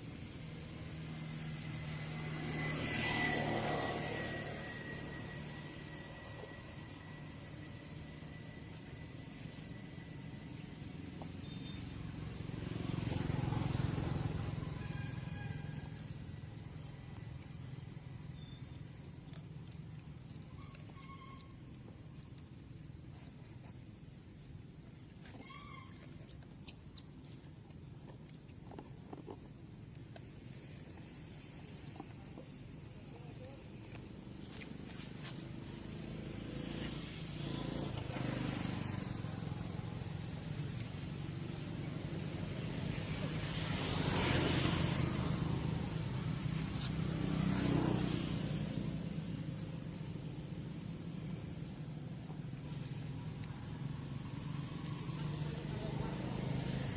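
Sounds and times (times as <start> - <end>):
low engine hum: 0.0 - 56.9
vehicles passing: 0.0 - 56.9
monkey squeaking: 25.1 - 27.3.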